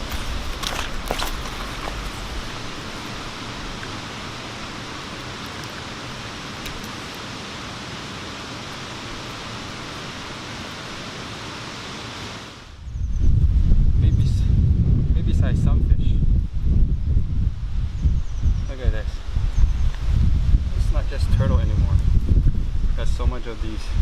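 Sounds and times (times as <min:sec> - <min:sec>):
flowing water rushing: 0:00.0 - 0:12.7.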